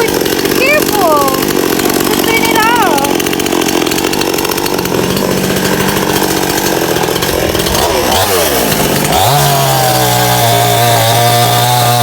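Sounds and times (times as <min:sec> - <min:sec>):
chainsaw cutting wood: 0:00.0 - 0:12.0.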